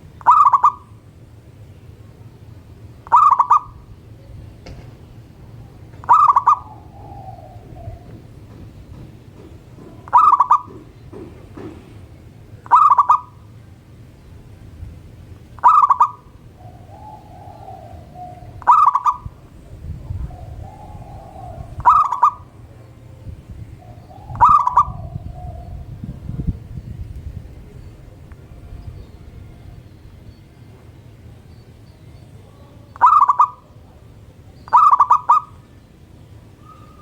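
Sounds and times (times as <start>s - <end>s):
doves cooing: 0.0s - 1.4s, 2.5s - 13.6s, 15.5s - 26.8s, 32.4s - 37.0s
dove pulsed call: 0.0s - 14.7s, 15.4s - 26.7s, 27.7s - 37.0s.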